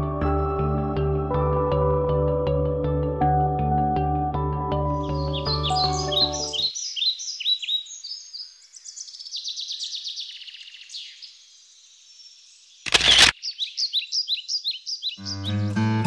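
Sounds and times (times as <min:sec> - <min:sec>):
songbirds chirping and trilling: 0:04.9 - 0:15.8
camera shutter click: 0:12.9 - 0:13.4.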